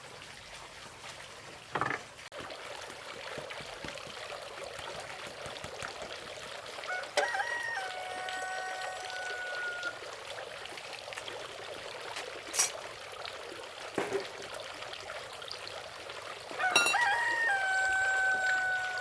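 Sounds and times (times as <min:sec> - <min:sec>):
rooster crowing: 0:06.9 - 0:10.0, 0:16.6 - 0:19.0.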